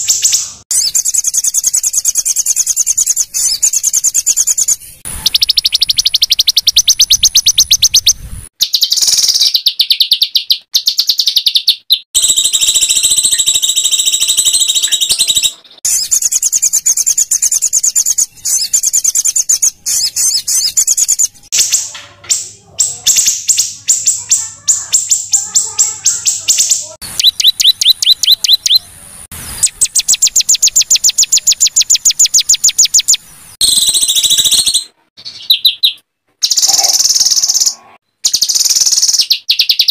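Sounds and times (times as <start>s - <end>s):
songbird singing rapid trills: 0.0s - 21.7s, 22.8s - 28.9s.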